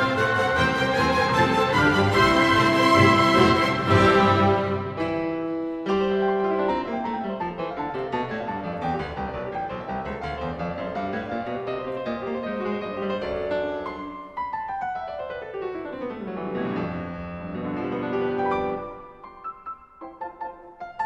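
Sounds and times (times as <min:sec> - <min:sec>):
piano music with quick runs: 0:00.0 - 0:21.0.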